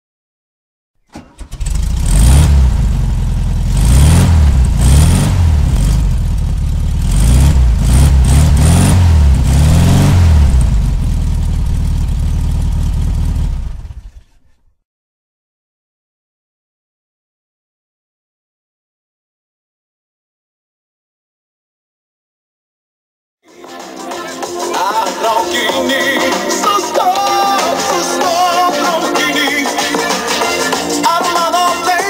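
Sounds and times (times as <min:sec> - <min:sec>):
car engine revving: 0:01.1 - 0:14.8.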